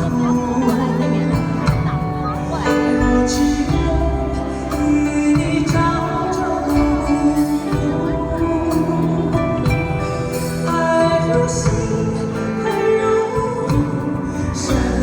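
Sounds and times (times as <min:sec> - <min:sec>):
live band playing slow song: 0:00.0 - 0:15.0.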